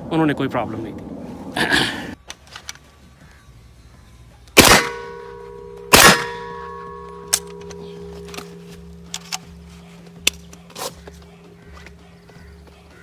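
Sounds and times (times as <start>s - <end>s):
background music with held notes: 2.2s - 13.0s
pistol shots with echo: 4.6s - 8.2s.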